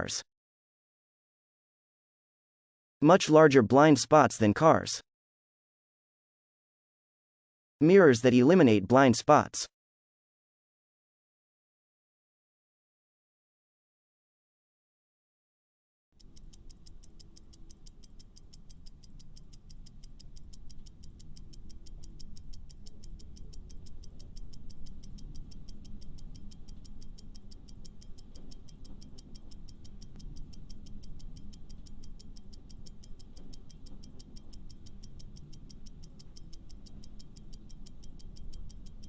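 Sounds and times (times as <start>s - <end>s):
fast clock-like ticking: 16.2s - 39.0s.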